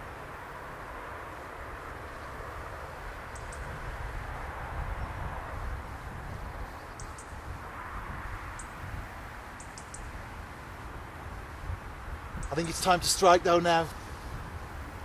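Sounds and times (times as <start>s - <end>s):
outdoor background hiss: 0.0s - 15.0s
small bird chirping: 3.3s - 3.8s, 6.7s - 7.4s, 9.6s - 10.1s.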